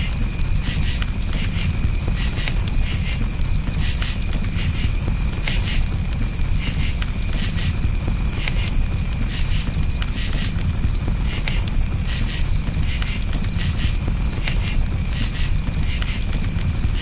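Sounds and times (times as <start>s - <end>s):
campfire crackling: 0.0s - 17.0s
crickets chirping: 0.0s - 17.0s.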